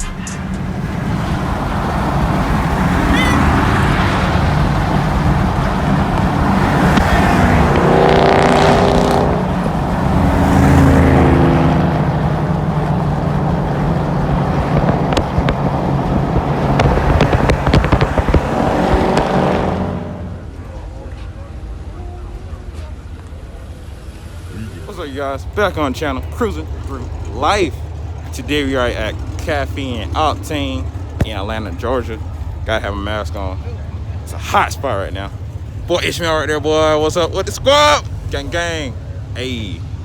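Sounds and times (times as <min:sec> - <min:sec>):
car engine running: 0:00.0 - 0:20.7, 0:23.2 - 0:40.0
car driving past: 0:00.0 - 0:40.0.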